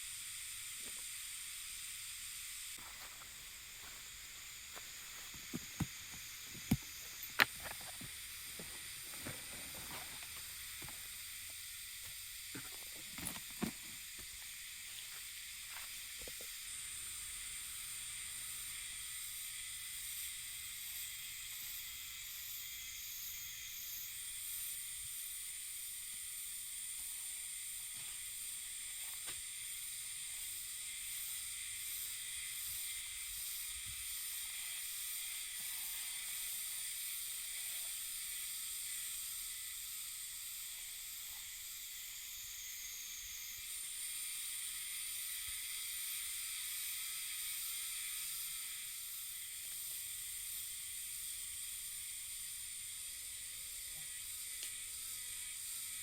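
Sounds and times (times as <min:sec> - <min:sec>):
cicadas droning: 0:00.0 - 0:56.0.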